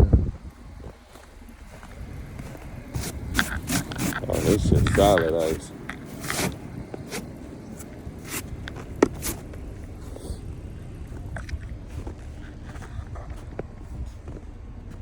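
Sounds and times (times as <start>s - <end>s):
car engine humming: 0.0s - 15.0s
scraping ice off a car: 2.3s - 10.5s.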